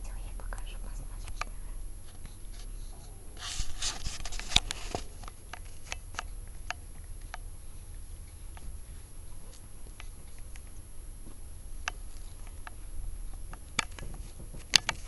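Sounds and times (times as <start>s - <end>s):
rustling and rubbing: 2.0s - 6.0s, 13.6s - 15.0s.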